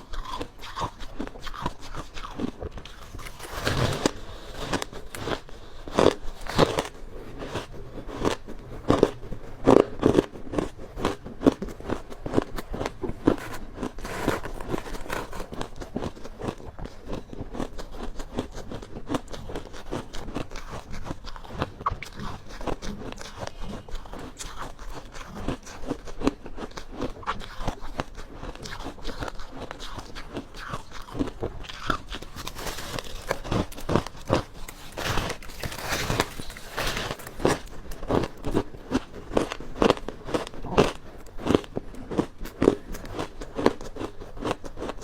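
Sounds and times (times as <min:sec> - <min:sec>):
ice being chewed: 0:00.0 - 0:45.0.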